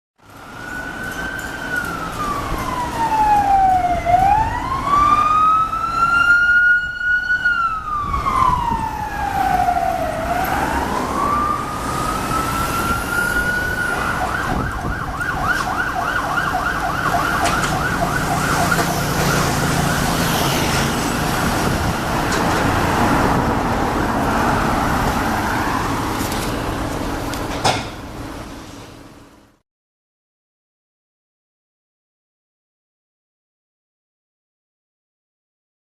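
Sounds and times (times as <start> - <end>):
police siren wailing and yelping: 0.4 - 26.4.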